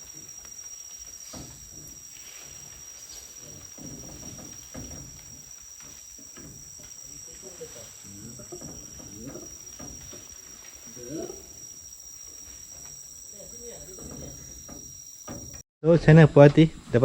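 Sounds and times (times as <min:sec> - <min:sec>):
insects droning: 0:00.0 - 0:15.6
murmured voices: 0:07.2 - 0:09.6.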